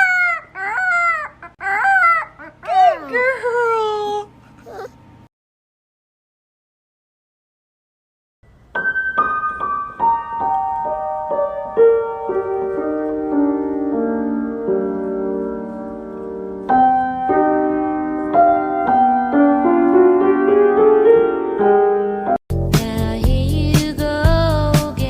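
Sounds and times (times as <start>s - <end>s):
solo piano music: 8.5s - 22.4s.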